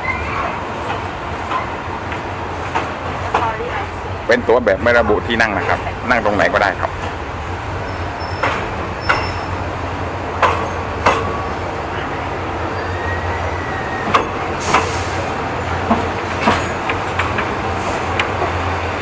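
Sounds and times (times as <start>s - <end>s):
train carriage rumbling: 0.0s - 19.0s
faint short squeal: 7.8s - 9.6s, 12.7s - 14.4s.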